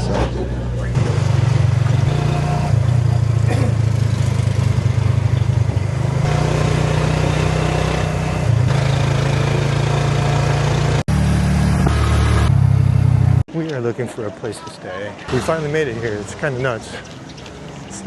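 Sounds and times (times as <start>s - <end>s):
motor engine humming: 0.0s - 13.4s.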